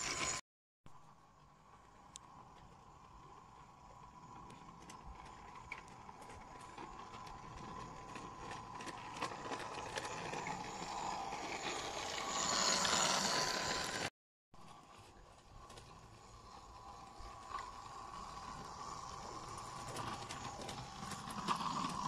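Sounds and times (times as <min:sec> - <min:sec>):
model locomotive motor whine: 0:00.0 - 0:22.0
wheel clicks: 0:15.7 - 0:22.0.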